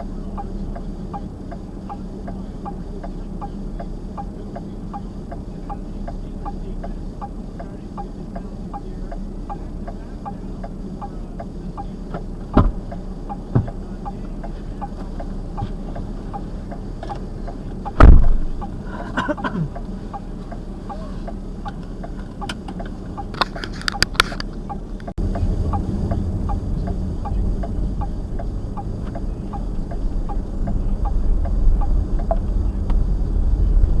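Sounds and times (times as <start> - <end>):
car engine humming: 0.0 - 34.0
regular ticking: 0.0 - 34.0
thumps: 12.1 - 13.8, 17.9 - 18.7.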